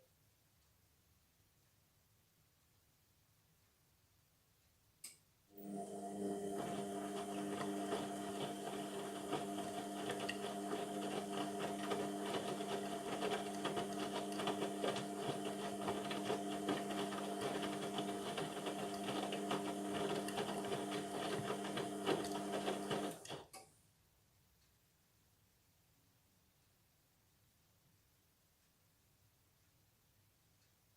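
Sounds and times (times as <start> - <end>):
washing machine drum motor: 5.6 - 23.5.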